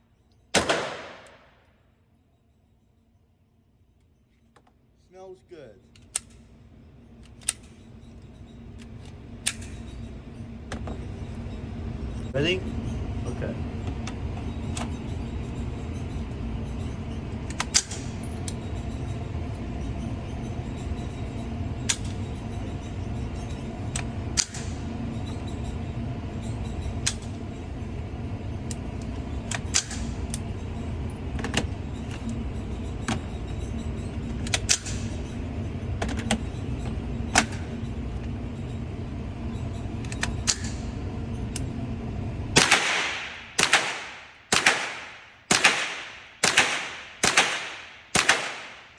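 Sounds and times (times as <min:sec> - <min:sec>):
gunshots with ringing echo: 0:00.6 - 0:01.5, 0:42.6 - 0:48.9.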